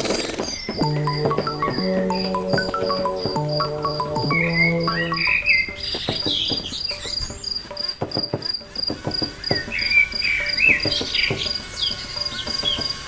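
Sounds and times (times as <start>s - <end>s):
cricket trilling: 0.2s - 13.0s
clicks and taps: 0.7s - 9.8s.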